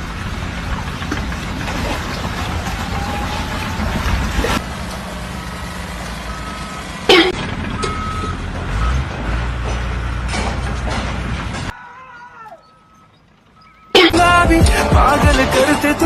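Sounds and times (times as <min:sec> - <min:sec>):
heavy vehicle engine rumble: 0:00.0 - 0:11.8, 0:12.6 - 0:16.0
reversing alarm beeping: 0:06.2 - 0:09.0, 0:11.8 - 0:14.5.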